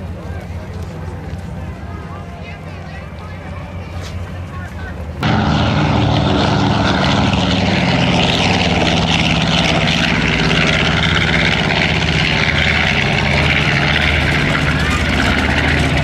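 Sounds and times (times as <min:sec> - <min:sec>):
propeller aircraft engine droning: 0:00.0 - 0:16.0.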